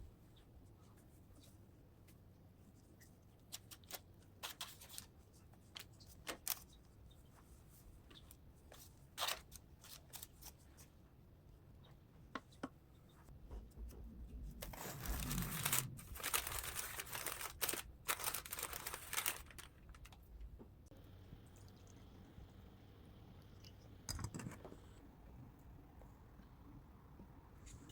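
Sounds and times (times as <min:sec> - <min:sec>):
food rustling and scraping: 0:14.5 - 0:20.2.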